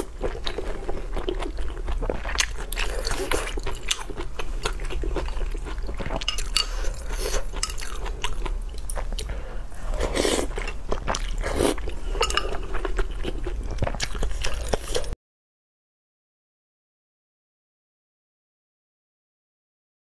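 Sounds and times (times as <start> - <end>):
wet chewing of meat: 0.0 - 15.2.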